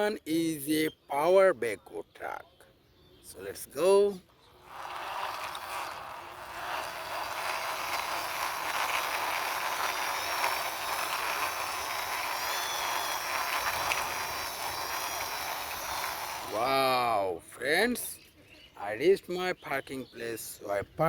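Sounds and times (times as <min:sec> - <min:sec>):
toy truck wheels rolling: 0:04.5 - 0:17.0.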